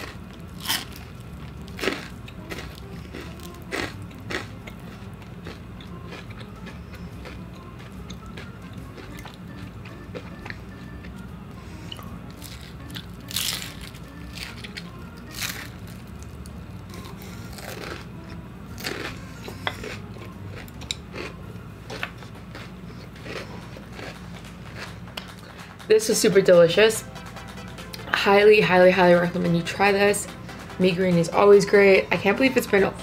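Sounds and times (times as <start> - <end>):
crunchy bites: 0.0 - 4.8
chewing noodles: 0.0 - 11.2, 16.9 - 18.1, 18.8 - 25.5.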